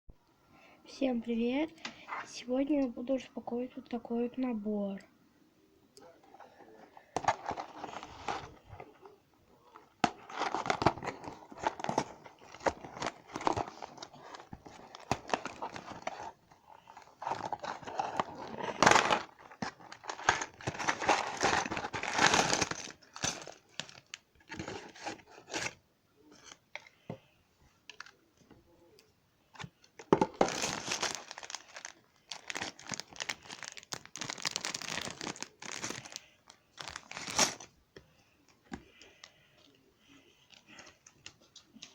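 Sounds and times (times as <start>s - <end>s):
packaging tearing and crinkling: 10.0s - 25.8s, 30.3s - 37.7s.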